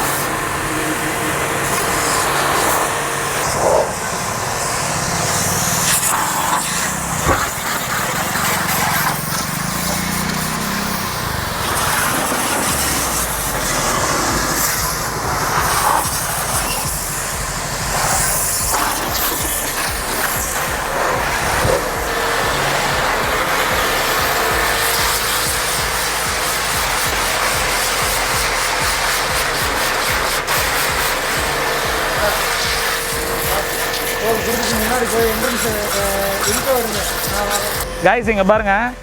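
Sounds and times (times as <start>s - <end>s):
pressure washer running: 0.0s - 39.0s
water jet spraying car: 0.0s - 39.0s.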